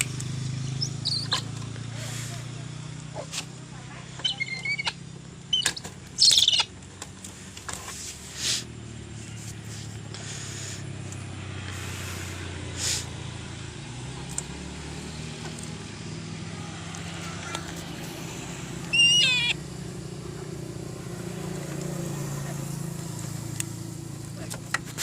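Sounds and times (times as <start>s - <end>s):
steady low hum: 0.0s - 24.5s
shrill bird call: 0.7s - 1.4s, 4.2s - 6.7s, 18.8s - 19.6s.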